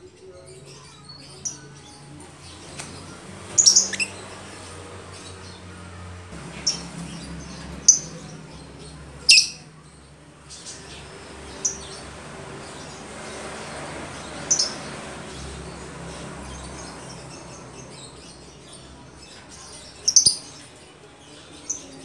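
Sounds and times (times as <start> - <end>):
lovebird high-pitched calls: 3.5 - 5.4, 6.5 - 9.7, 16.5 - 20.6.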